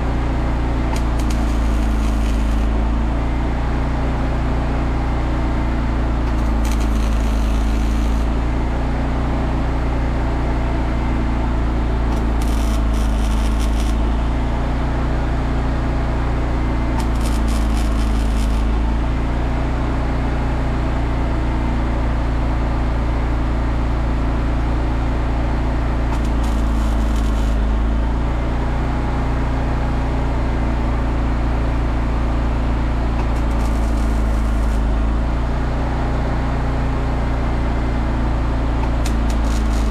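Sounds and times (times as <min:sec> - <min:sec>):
welder engine humming: 0:00.0 - 0:19.8, 0:25.3 - 0:29.4, 0:32.9 - 0:36.2, 0:38.0 - 0:39.9
welding crackle: 0:00.7 - 0:03.1, 0:06.2 - 0:08.4, 0:12.1 - 0:14.4, 0:17.0 - 0:19.0, 0:26.1 - 0:28.0, 0:33.2 - 0:35.2, 0:38.8 - 0:39.9.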